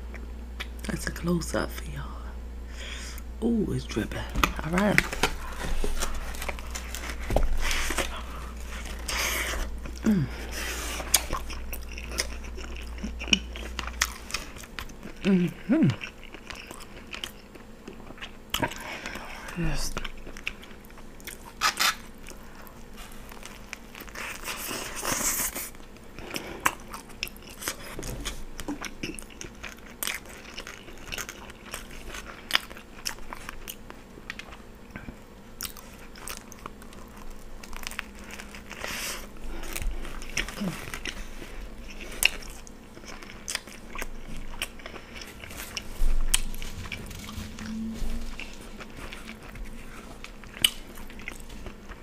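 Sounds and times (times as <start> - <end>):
chewing with mouth clicks: 4.4 - 52.0.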